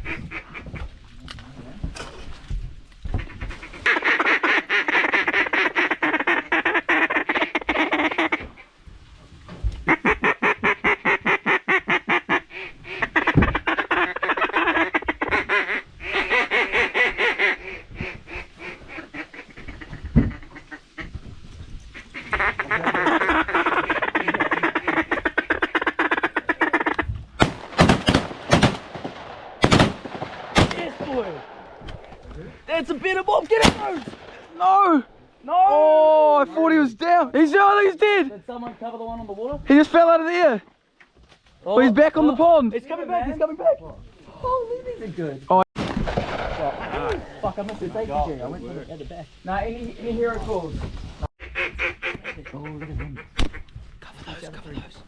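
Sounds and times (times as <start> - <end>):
duck call quacking: 3.2 - 8.6, 9.8 - 21.1, 22.0 - 27.1, 51.4 - 53.7
shotgun blasts: 27.4 - 31.9, 33.6 - 34.6, 45.8 - 47.1.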